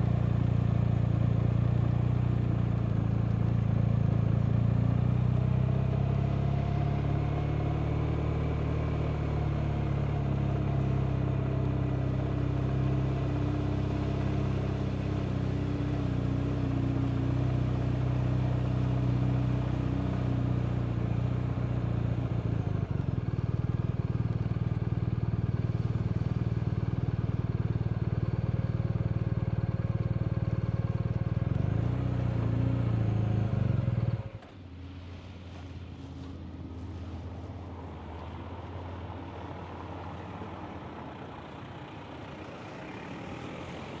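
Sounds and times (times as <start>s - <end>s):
road noise: 0.0s - 44.0s
motorcycle engine running: 20.3s - 34.5s.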